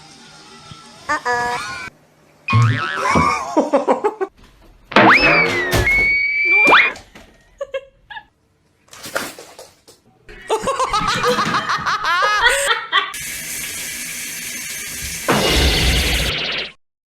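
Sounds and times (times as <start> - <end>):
person laughing: 2.8 - 4.3, 10.3 - 13.2.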